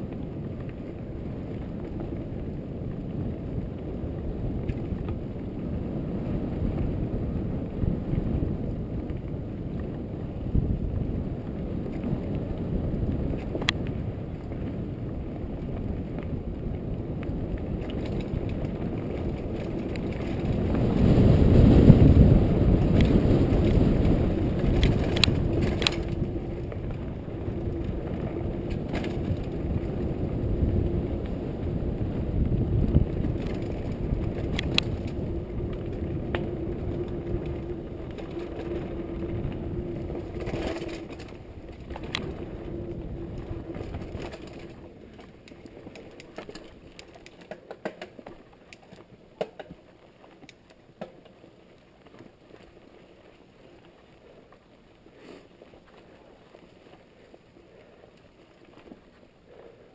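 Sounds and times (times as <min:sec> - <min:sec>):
bike rattling: 0:00.0 - 0:59.9
bike tyres rumbling on dirt: 0:00.0 - 0:59.9
steady low hum: 0:16.4 - 0:47.1.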